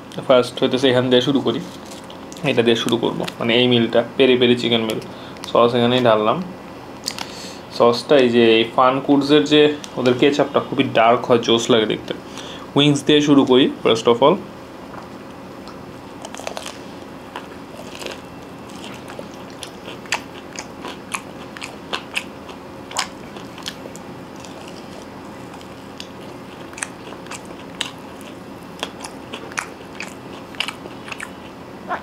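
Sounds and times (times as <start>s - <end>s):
faint steady hum: 0.0s - 32.0s
chewing crispy fried chicken: 1.4s - 3.4s, 15.0s - 32.0s.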